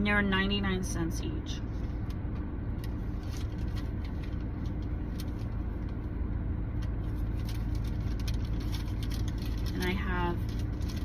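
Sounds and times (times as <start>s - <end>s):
faint constant hum: 0.0s - 11.0s
low vehicle rumble: 0.0s - 11.0s
rustling: 2.8s - 6.0s, 7.0s - 11.0s.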